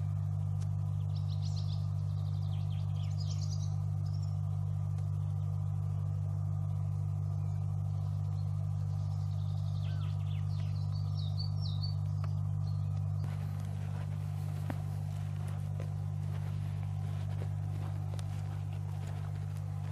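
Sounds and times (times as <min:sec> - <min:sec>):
steady low hum: 0:00.0 - 0:19.9
high bird chirps: 0:08.3 - 0:13.4.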